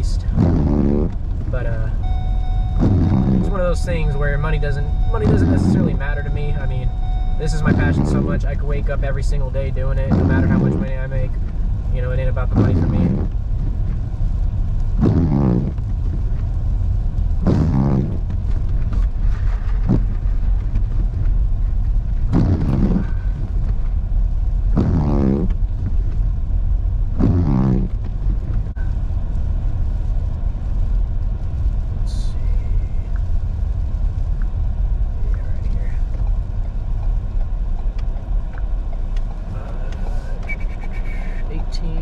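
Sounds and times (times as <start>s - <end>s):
windshield wipers squeaking: 0.0s - 14.0s, 14.9s - 16.5s, 17.4s - 24.0s, 24.7s - 26.3s, 27.2s - 28.6s, 38.9s - 41.4s
car cabin road rumble: 0.0s - 42.0s.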